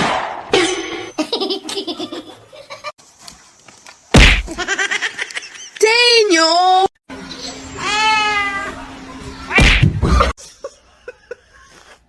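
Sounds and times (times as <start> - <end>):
person laughing: 1.2 - 2.9, 4.5 - 5.8, 10.0 - 12.0
loud thump: 4.2 - 4.6, 9.6 - 10.2.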